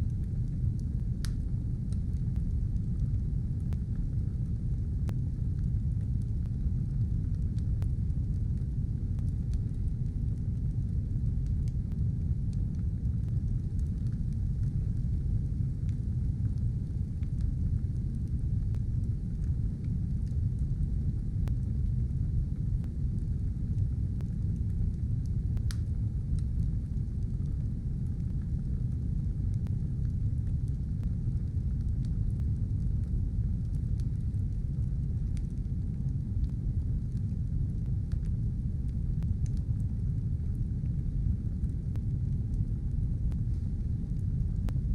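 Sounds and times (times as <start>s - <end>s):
faint fire crackles: 0.0s - 44.9s
fire rumbling in a stove: 0.0s - 44.9s.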